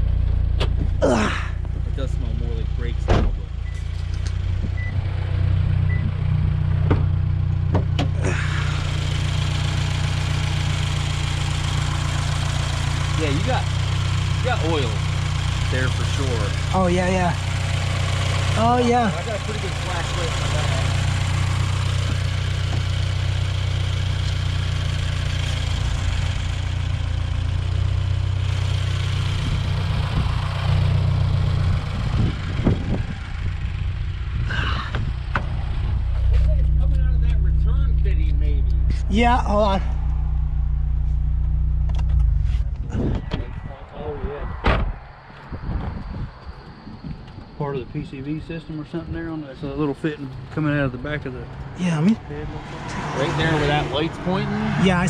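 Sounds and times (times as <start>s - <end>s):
car engine idling: 0.0s - 44.2s, 46.3s - 55.0s.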